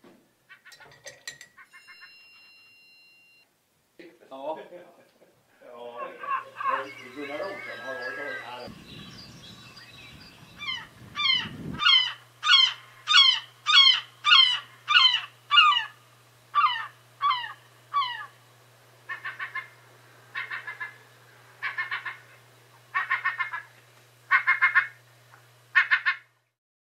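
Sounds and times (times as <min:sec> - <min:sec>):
faint low hum: 0:00.2 - 0:26.6
bird calling loudly: 0:05.8 - 0:18.4, 0:19.1 - 0:25.0, 0:25.7 - 0:26.3.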